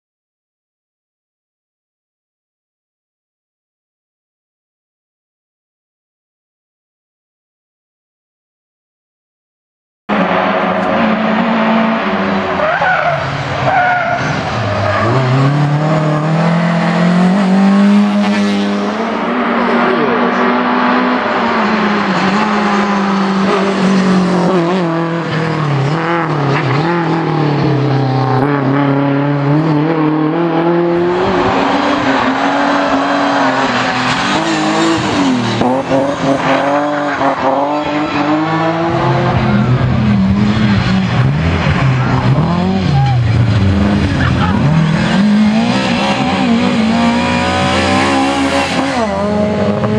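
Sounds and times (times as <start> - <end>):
rally car engine revving: 10.1 - 49.9.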